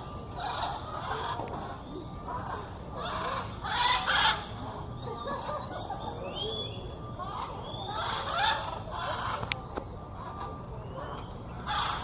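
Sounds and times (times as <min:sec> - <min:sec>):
parrots squawking: 0:00.3 - 0:09.4, 0:11.6 - 0:12.0.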